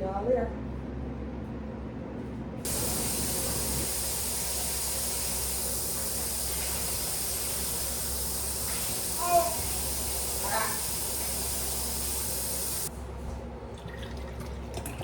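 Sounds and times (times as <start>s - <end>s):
steady spraying hiss: 2.7s - 12.9s.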